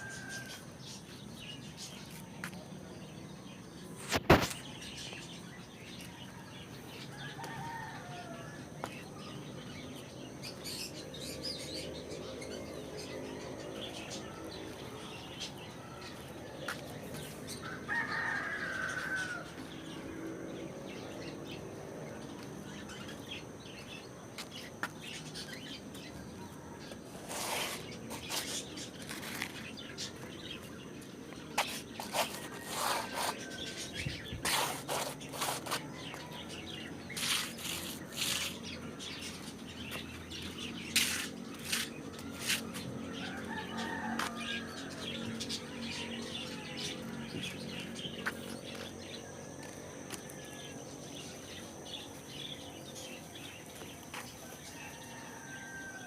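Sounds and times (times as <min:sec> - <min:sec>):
rooster crowing: 0:00.0 - 0:00.7, 0:07.1 - 0:08.8, 0:17.5 - 0:19.8, 0:43.0 - 0:47.2, 0:54.4 - 0:56.0
faint birdsong: 0:00.0 - 0:56.0.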